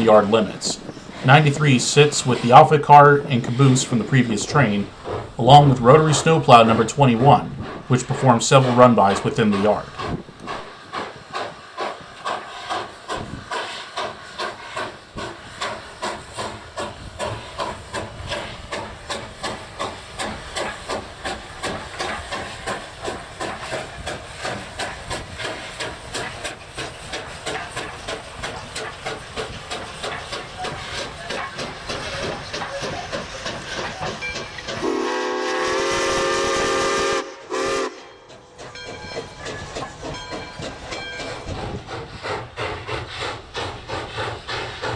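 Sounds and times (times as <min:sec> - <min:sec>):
steam locomotive exhaust chuffing: 0:00.0 - 0:44.9
steam whistle blast: 0:34.8 - 0:38.3.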